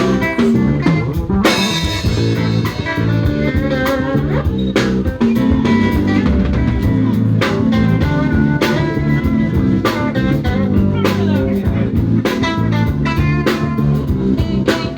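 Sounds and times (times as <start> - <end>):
bass guitar: 0.0 - 14.9
drum kit: 0.0 - 14.9
electric guitar: 0.0 - 14.9.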